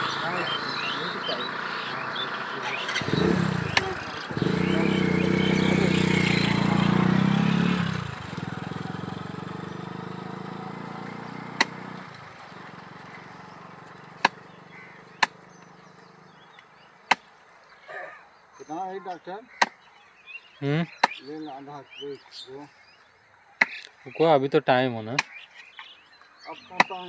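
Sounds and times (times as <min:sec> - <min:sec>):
motorcycle engine running: 0:00.0 - 0:17.3
sharp knocks: 0:11.6 - 0:12.1, 0:14.2 - 0:14.5, 0:17.1 - 0:17.3, 0:23.6 - 0:23.8, 0:26.8 - 0:27.0.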